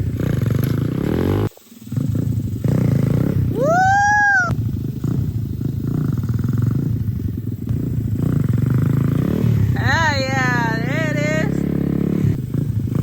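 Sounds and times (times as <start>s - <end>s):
person calling out: 3.6s - 4.5s.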